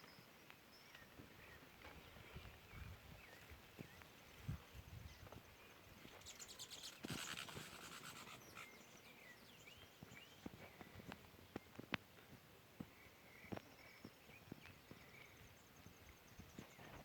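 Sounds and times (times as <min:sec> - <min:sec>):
faint bird chirps: 0:00.0 - 0:11.8, 0:12.8 - 0:17.0
hissing rustle with fast ticks: 0:06.0 - 0:09.2.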